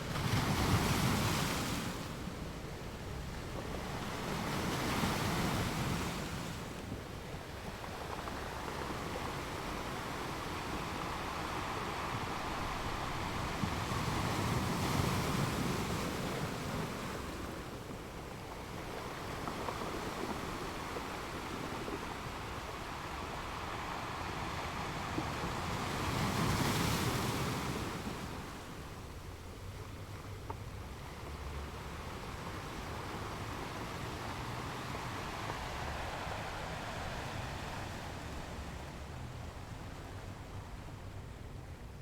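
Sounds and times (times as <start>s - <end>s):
ocean waves washing in: 30.8s - 42.0s.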